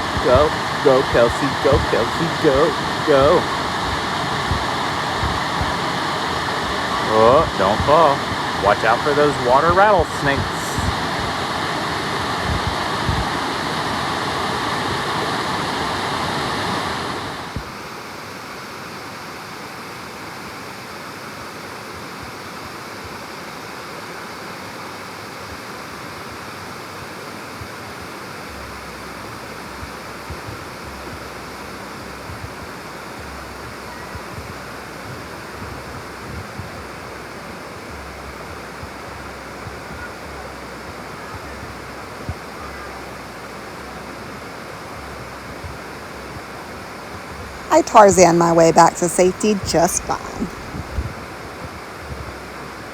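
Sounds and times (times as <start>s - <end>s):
waterfall rushing: 0.0s - 17.9s.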